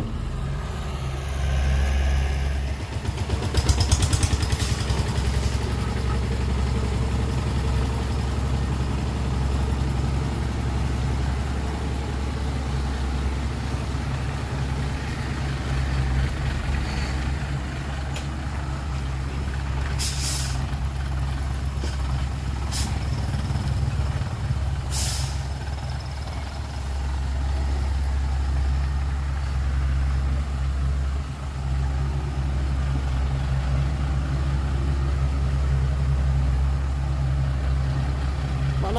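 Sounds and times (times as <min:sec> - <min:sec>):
heavy diesel engines running: 0:00.0 - 0:38.9
air brake hisses: 0:20.0 - 0:20.6, 0:22.7 - 0:23.0, 0:24.9 - 0:25.5.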